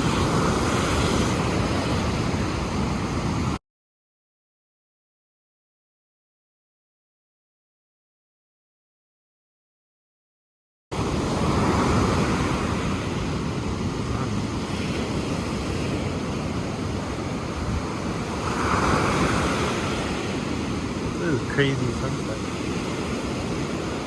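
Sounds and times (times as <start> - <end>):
ocean waves washing ashore: 0.0 - 3.6, 10.9 - 24.0
wind on microphone: 0.0 - 3.6, 11.0 - 24.0.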